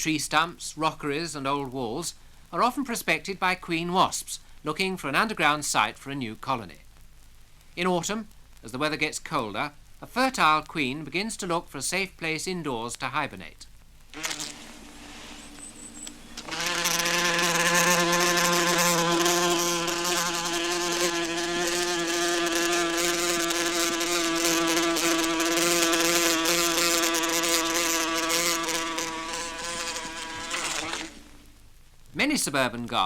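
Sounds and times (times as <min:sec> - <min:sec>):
wasp buzzing in flight: 0:14.1 - 0:31.4.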